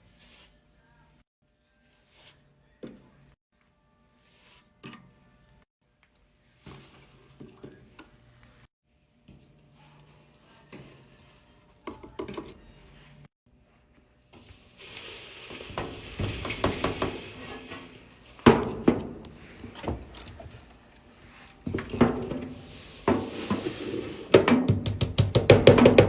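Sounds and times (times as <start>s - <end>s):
liquid pouring hiss: 14.8s - 18.2s.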